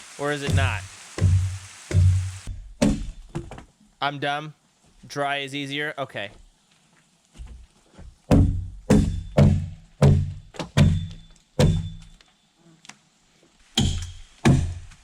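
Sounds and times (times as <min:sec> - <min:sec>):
axe chopping wood: 0:00.5 - 0:03.5, 0:08.3 - 0:12.0, 0:13.8 - 0:15.0.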